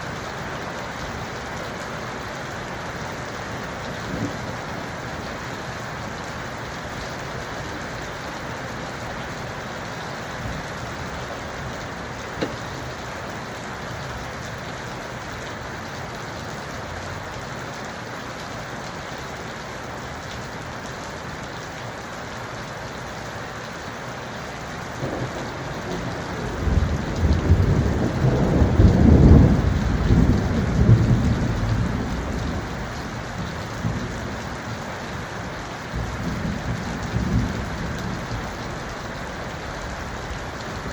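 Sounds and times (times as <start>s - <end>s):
steady rain falling: 0.0s - 40.9s
rolling thunder rumble: 25.0s - 34.4s.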